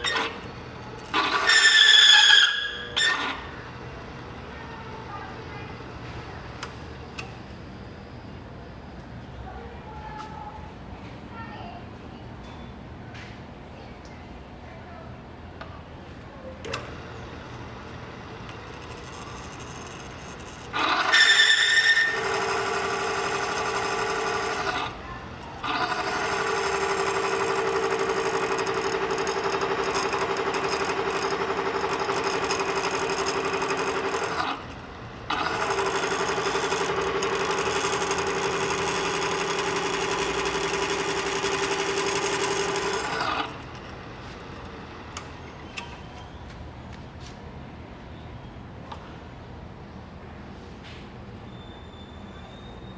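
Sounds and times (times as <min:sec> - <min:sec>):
motor-driven machine running: 0:00.0 - 0:08.2, 0:16.6 - 0:45.8
brief high squeal: 0:51.4 - 0:52.9.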